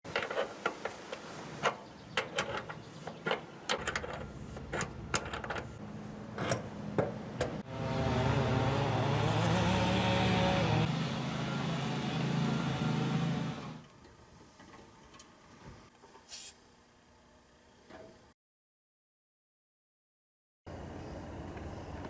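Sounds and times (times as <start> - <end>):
loud machine hum: 7.6 - 13.8.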